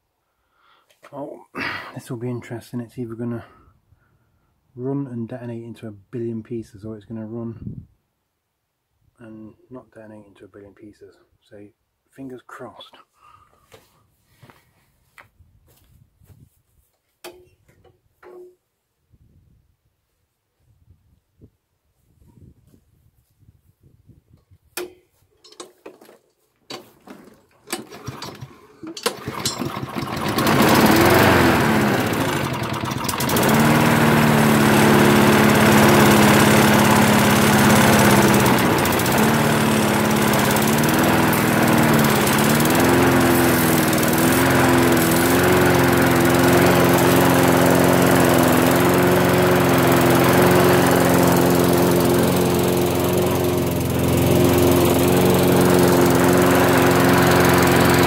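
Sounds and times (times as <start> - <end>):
lawnmower engine starting and running: 24.8 - 58.0.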